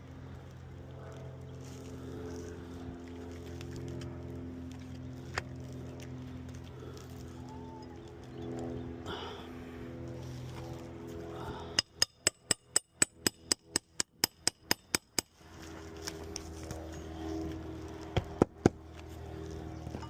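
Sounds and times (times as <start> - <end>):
hammer striking nails: 11.8 - 15.3.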